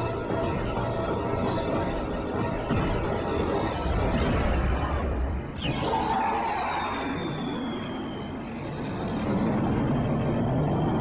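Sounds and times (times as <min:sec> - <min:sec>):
film score music with drone: 0:00.0 - 0:11.0.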